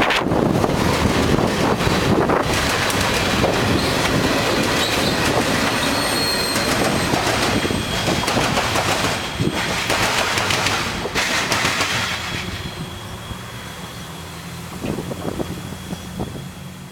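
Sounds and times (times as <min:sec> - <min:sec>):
wheels clicking over rail joints: 0:00.0 - 0:12.8
train wheels rumbling: 0:00.0 - 0:16.9
faint high wheel squeal: 0:03.7 - 0:09.7, 0:12.1 - 0:16.9.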